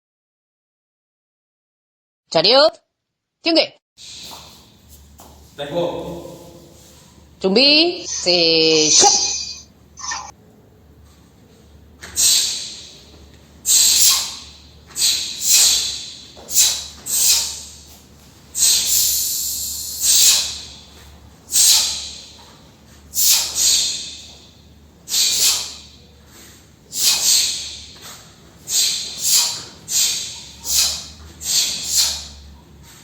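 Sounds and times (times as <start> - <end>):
sharp hissing exhalations: 4.0 - 4.7, 12.0 - 32.6.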